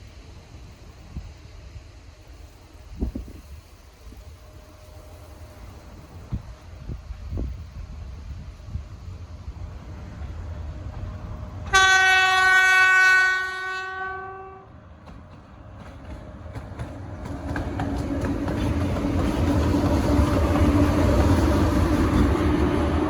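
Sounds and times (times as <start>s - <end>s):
train rumble and wheel clatter: 0.0s - 23.0s
train horn blast: 11.6s - 14.7s.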